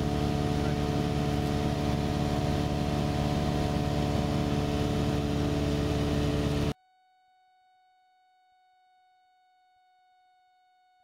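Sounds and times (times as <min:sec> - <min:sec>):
light aircraft engine and propeller: 0:00.0 - 0:06.8.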